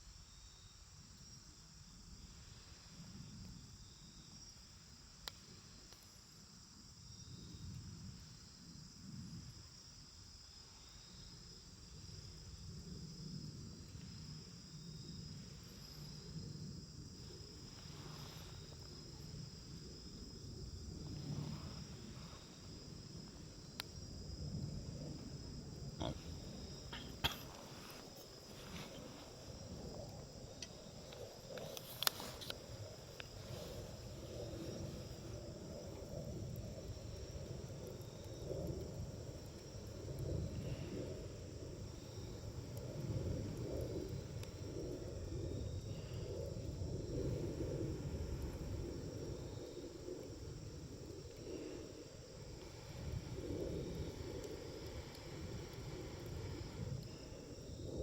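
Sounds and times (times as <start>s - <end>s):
cricket trilling: 0.0s - 58.0s
campfire flame rustle: 0.1s - 58.0s
fire crackling pops: 5.1s - 6.2s, 13.5s - 45.2s, 52.4s - 57.6s.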